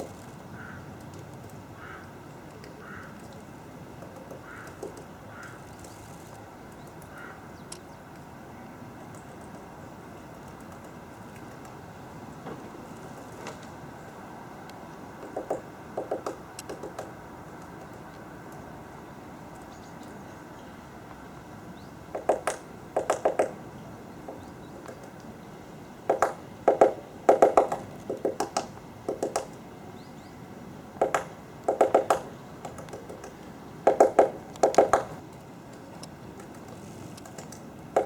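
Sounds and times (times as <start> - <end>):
woodpecker pecking: 0.0 - 7.8, 10.3 - 13.9, 14.9 - 18.7, 22.1 - 25.4, 26.0 - 29.6, 30.9 - 35.2, 35.8 - 38.0.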